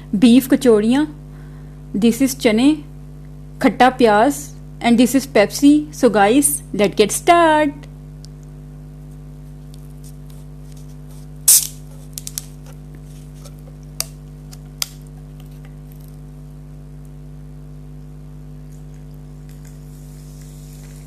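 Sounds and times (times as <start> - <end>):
electrical mains hum: 0.0 - 21.0
short hiss: 11.5 - 11.8.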